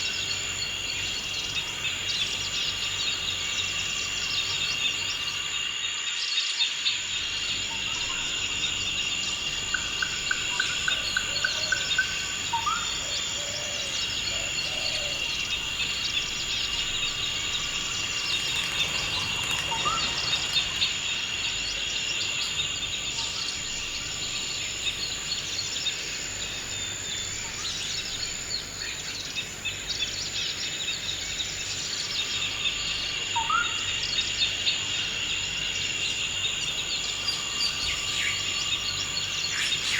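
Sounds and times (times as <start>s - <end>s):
insect drone: 0.0s - 39.9s
birds chirping: 7.4s - 25.8s.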